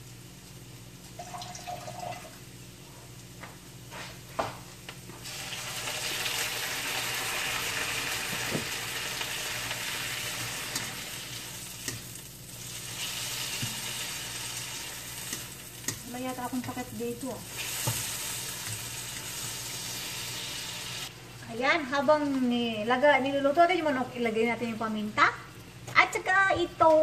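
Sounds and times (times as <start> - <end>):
chicken sizzling in a wok: 0.0 - 1.3, 1.9 - 27.0
spatula stirring: 11.6 - 20.3.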